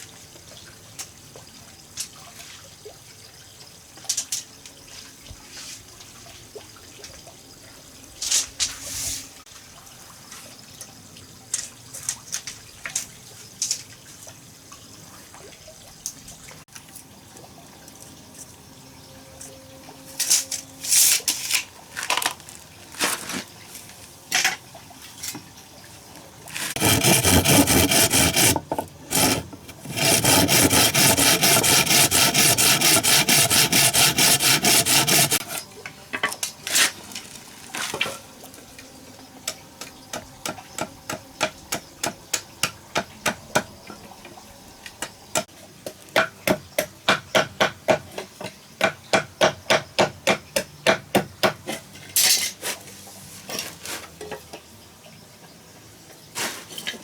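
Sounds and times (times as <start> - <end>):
tool scraping wood: 26.5 - 35.6.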